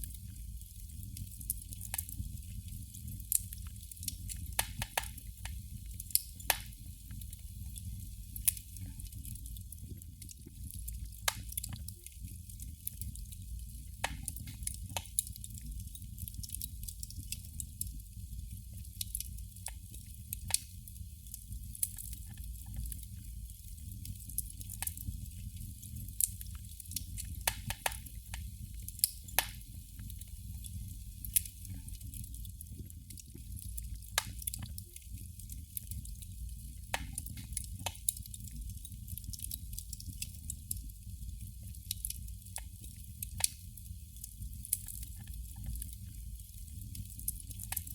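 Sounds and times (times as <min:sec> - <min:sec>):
candle crackling: 0:00.0 - 0:47.9.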